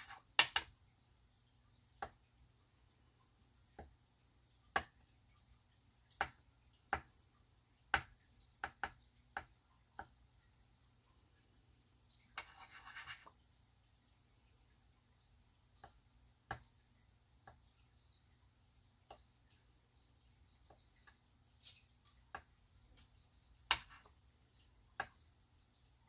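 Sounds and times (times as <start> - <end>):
scratchy rubbing on paper: 0.0 - 0.3, 12.4 - 13.4
small tool tapping on paper: 0.0 - 0.7, 7.9 - 10.2, 12.3 - 13.3, 20.7 - 24.2.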